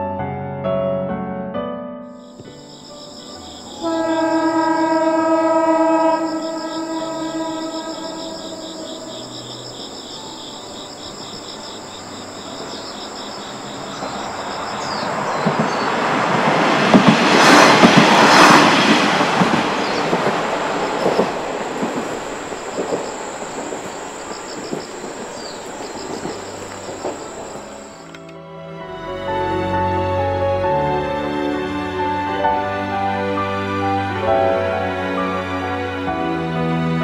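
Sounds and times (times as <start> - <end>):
insects calling: 2.2 - 16.2, 18.2 - 28.3
diesel railcar passing: 2.2 - 37.0
wheels clattering over rail joints: 8.7 - 28.3.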